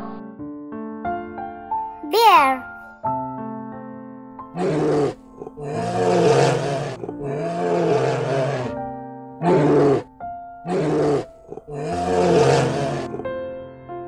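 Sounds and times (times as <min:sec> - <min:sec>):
bear roaring: 0:04.6 - 0:08.8, 0:09.4 - 0:10.1, 0:10.7 - 0:13.3.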